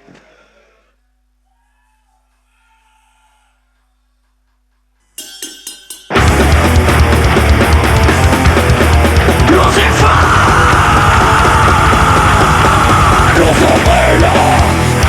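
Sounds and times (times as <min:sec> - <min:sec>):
heavy metal band playing live: 0:05.4 - 0:15.0.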